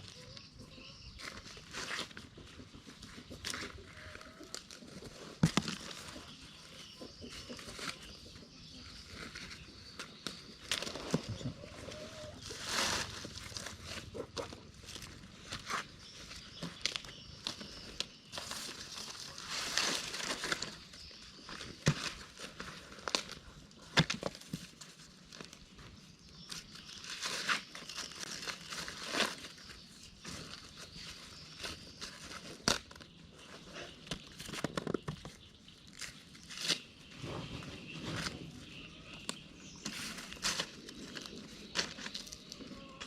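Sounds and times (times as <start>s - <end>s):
dry corn leaves rustling: 0.0s - 43.0s
corn stalks snapping: 32.6s - 33.0s.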